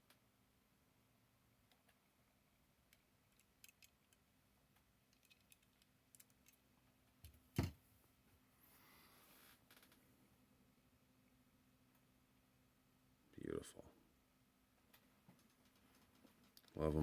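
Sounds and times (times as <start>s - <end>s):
toy car clicks and taps: 2.9s - 4.2s, 5.1s - 6.6s.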